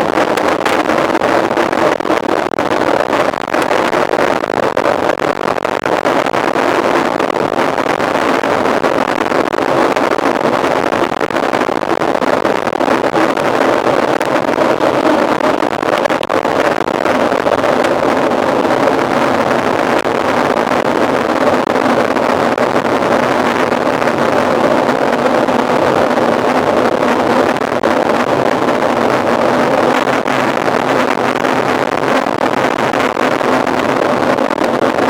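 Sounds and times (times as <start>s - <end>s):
wind rushing over microphone: 0.0s - 35.0s.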